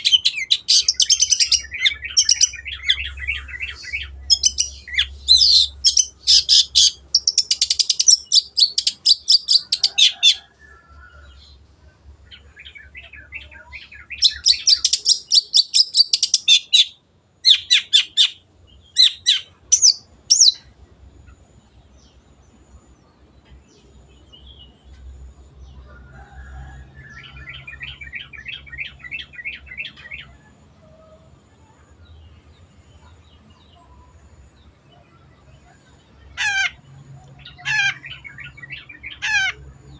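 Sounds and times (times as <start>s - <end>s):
shrike singing: 0.0s - 10.9s, 12.2s - 21.4s.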